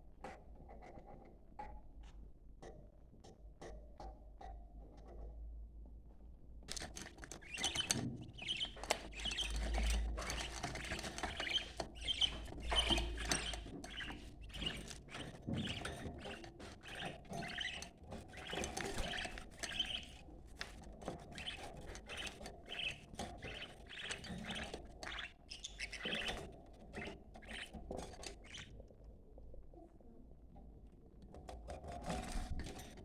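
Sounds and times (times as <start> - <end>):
budgerigars chirping: 7.4 - 28.7.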